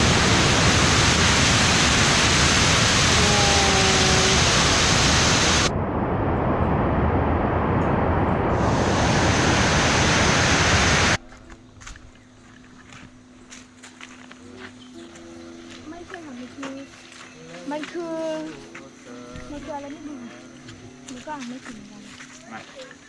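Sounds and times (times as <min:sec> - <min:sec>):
waterfall roaring: 0:00.0 - 0:11.2.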